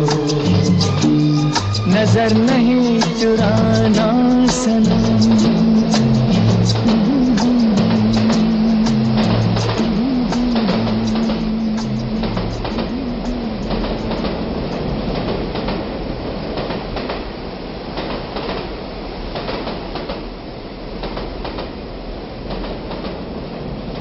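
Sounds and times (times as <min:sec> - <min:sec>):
wheels clicking: 0:00.0 - 0:17.3
train rumbling on rails: 0:00.0 - 0:24.0.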